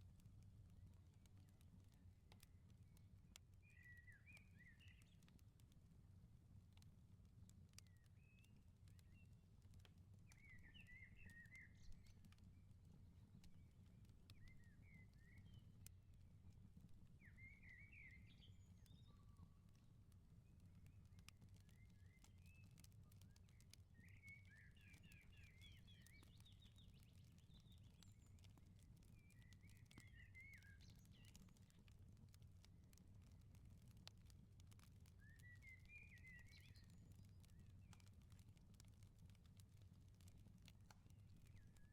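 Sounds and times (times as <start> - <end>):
wood fire crackling: 0.0 - 17.3, 18.2 - 41.9
small birds chirping: 3.6 - 5.4, 10.2 - 12.6, 13.2 - 15.8, 17.2 - 32.0, 34.8 - 39.6, 41.1 - 41.9.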